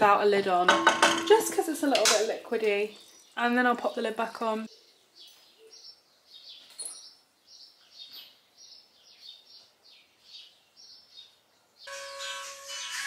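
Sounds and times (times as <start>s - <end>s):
bird chirping: 2.8s - 11.9s
background music with held notes: 11.9s - 13.0s.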